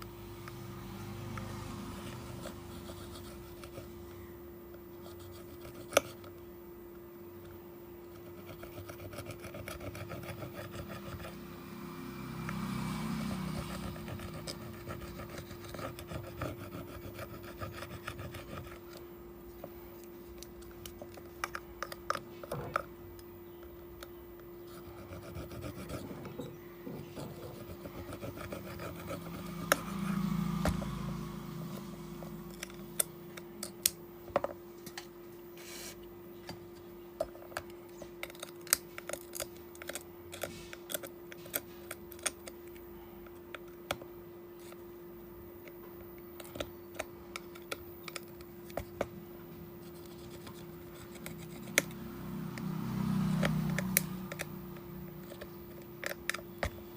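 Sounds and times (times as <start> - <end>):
steady low hum: 0.0 - 56.9
tools scraping on phone: 1.1 - 4.0, 5.0 - 6.4, 8.0 - 11.5, 12.5 - 19.1, 24.1 - 32.5, 49.8 - 56.8.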